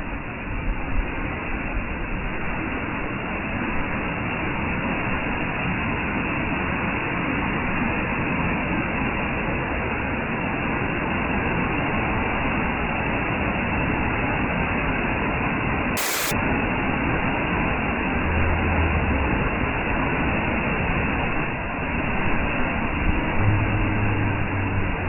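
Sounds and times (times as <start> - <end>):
loud rushing noise: 16.0 - 16.4.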